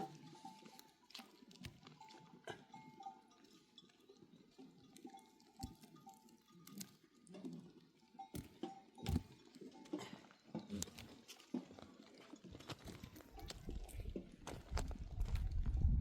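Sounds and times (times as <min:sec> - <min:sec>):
faint bell tinkling: 0:01.9 - 0:14.2.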